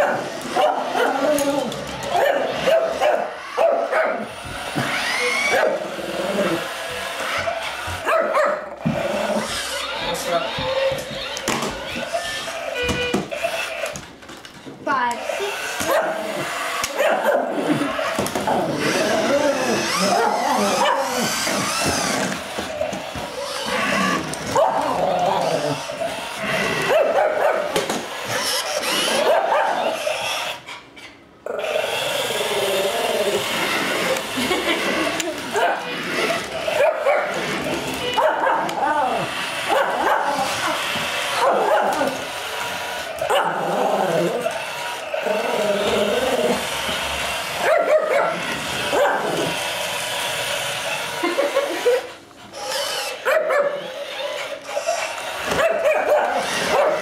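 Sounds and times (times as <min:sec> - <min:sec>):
dog barking and yipping: 0:00.0 - 0:01.4, 0:02.1 - 0:05.8, 0:07.3 - 0:08.8, 0:15.8 - 0:17.6, 0:19.6 - 0:21.9, 0:23.3 - 0:25.0, 0:26.8 - 0:30.2, 0:35.5 - 0:42.3, 0:43.2 - 0:43.7, 0:47.5 - 0:49.6, 0:52.7 - 0:57.0
small dog barking and growling: 0:15.8 - 0:17.8, 0:18.5 - 0:21.8, 0:43.2 - 0:44.4.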